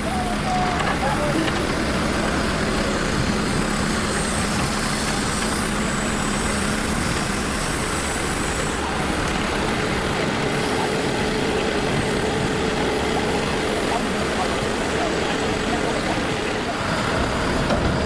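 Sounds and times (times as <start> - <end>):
tree-cutting machine engine: 0.0 - 18.0.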